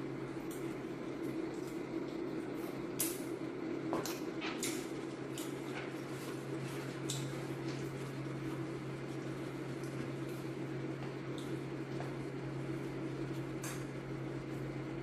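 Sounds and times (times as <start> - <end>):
low electrical hum: 0.0 - 15.0
chewing crispy fried chicken: 0.2 - 3.4.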